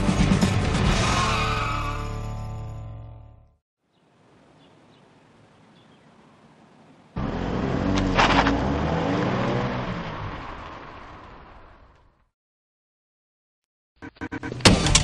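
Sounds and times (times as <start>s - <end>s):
car engine accelerating: 7.2s - 12.0s.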